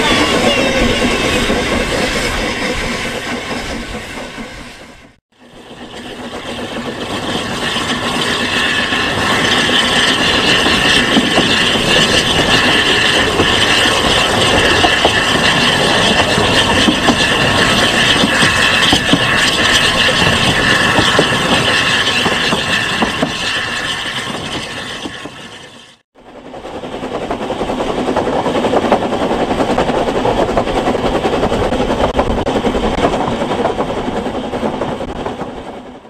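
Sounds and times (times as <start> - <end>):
train carriage rushing along track: 0.0 - 36.0
wheels clicking and knocking: 5.8 - 25.8.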